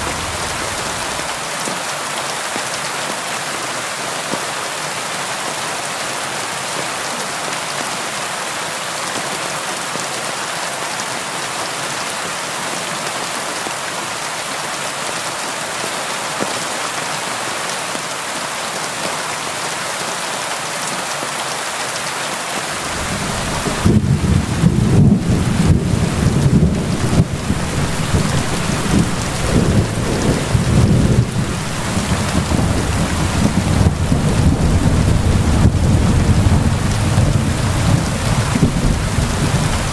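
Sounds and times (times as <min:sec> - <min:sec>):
rain pattering on a window: 0:00.0 - 0:01.4, 0:22.6 - 0:39.9
thunder rumbling: 0:00.0 - 0:01.4, 0:22.8 - 0:39.9.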